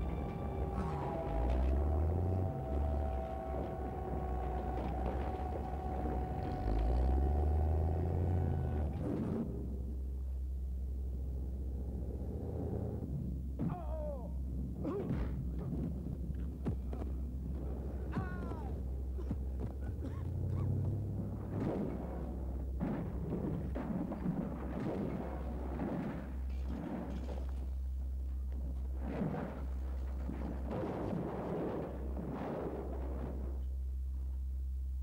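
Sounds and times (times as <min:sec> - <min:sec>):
car engine rumbling: 0:00.0 - 0:35.0
knocks and thuds: 0:14.8 - 0:27.8.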